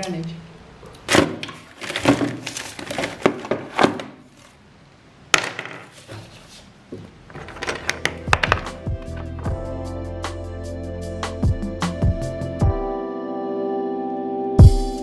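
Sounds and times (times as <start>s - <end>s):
hard objects knocking and clicking: 7.0s - 9.2s.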